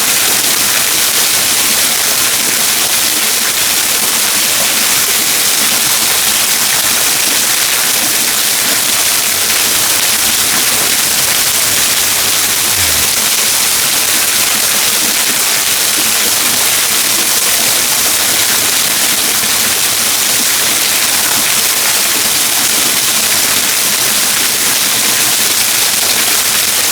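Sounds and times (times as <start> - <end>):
waterfall rushing: 6.0 - 22.6.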